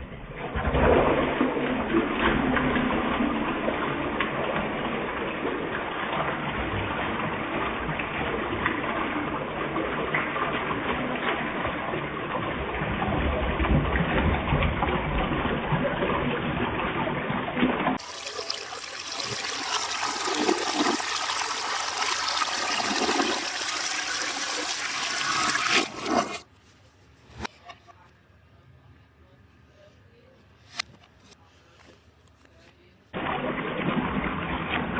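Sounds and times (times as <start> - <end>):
toilet flushing: 0.1 - 16.8, 18.0 - 26.5.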